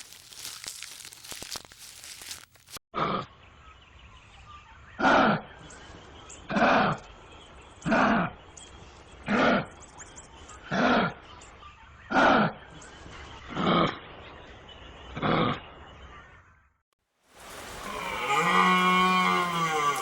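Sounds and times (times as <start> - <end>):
animal calls with falling pitch: 17.5 - 20.0.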